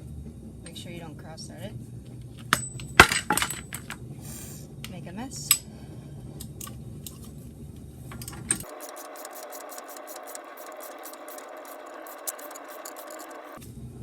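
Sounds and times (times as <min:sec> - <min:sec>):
metal clinks: 0:02.4 - 0:04.0, 0:08.1 - 0:08.7
ratchet clicking: 0:08.1 - 0:13.6.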